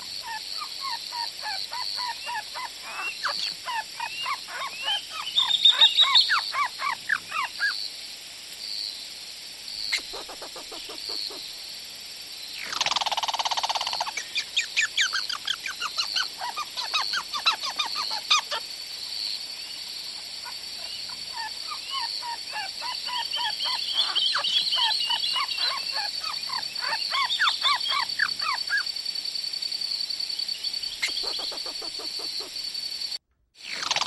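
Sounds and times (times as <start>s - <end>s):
bird calls with falling notes: 0.0s - 7.8s, 9.9s - 11.4s, 20.8s - 28.9s, 30.9s - 32.6s.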